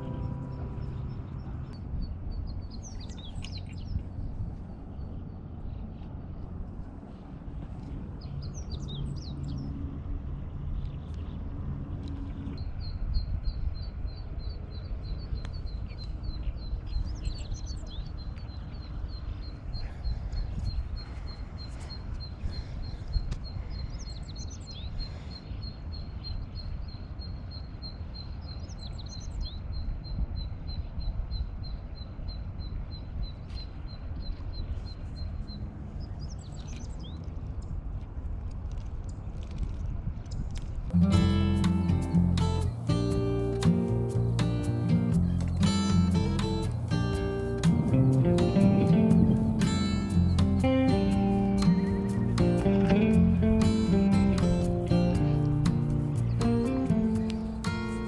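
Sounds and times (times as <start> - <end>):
birds chirping: 0.0 - 6.0, 7.8 - 9.9, 10.7 - 37.3, 40.9 - 58.0
low outdoor rumble: 0.0 - 26.0, 33.0 - 58.0.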